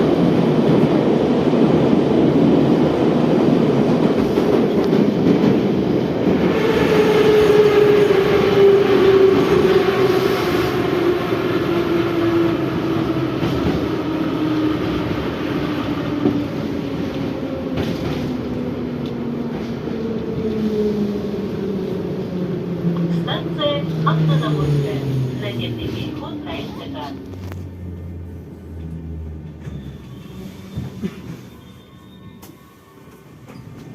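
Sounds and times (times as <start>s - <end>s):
wheels rumbling on rail: 0.0s - 33.9s.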